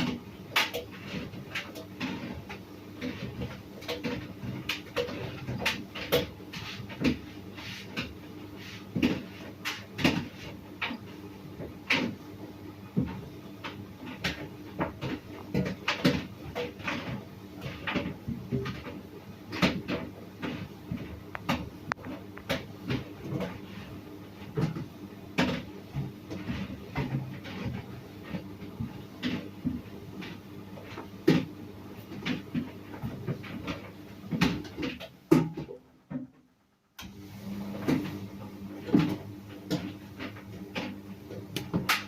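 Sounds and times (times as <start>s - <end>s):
tumble dryer motor hum: 0.0s - 42.0s
dryer drum knocks and clicks: 32.2s - 36.5s.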